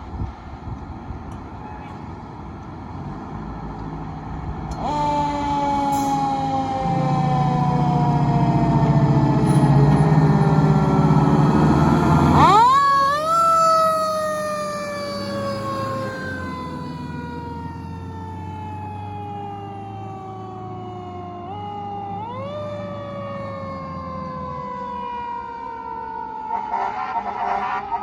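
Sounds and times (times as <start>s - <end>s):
heavy truck engine rumbling: 0.0s - 28.0s
fire engine siren winding: 4.7s - 27.0s.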